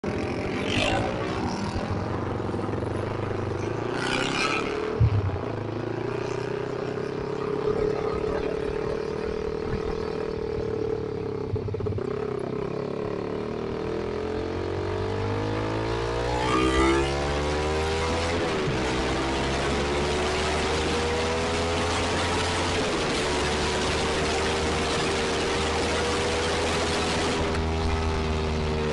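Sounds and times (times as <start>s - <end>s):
motorcycle engine running: 0.0s - 28.9s
sharp knock: 5.0s - 5.5s.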